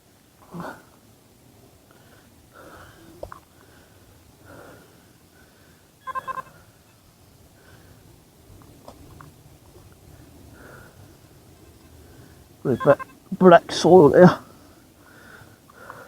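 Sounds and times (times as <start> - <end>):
metal detector beeps: 6.0 - 6.5, 12.7 - 13.6.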